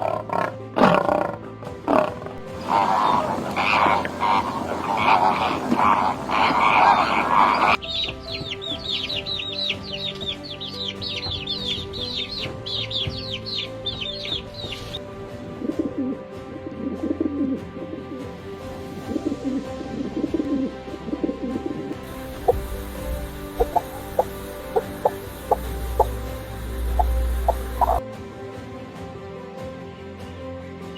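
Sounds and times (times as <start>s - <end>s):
lion-like roar: 0.0s - 7.8s
low cooing calls: 2.0s - 7.8s, 22.0s - 28.0s
high falling bird-like chirps: 2.5s - 15.0s, 22.3s - 28.0s.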